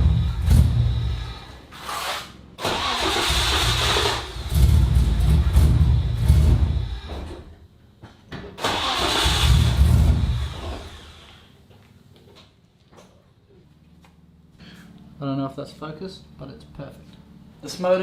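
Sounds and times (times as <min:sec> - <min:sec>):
engine cranking on starter: 0:02.6 - 0:07.5, 0:08.6 - 0:11.4.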